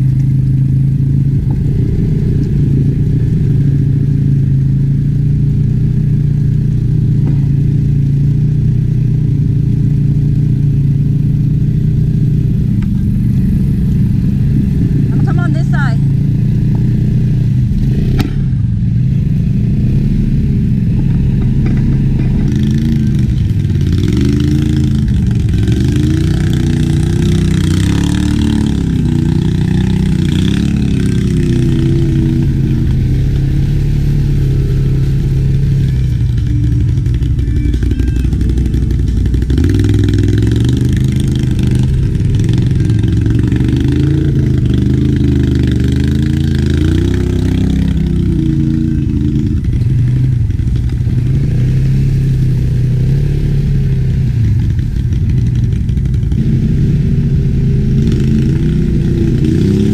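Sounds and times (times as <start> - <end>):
quad bike engine revving: 0.0 - 59.9.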